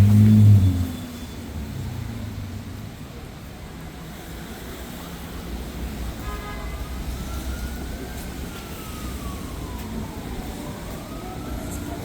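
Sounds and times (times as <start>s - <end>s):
city traffic rumble: 0.0s - 12.0s
emergency vehicle siren wailing: 6.8s - 12.0s.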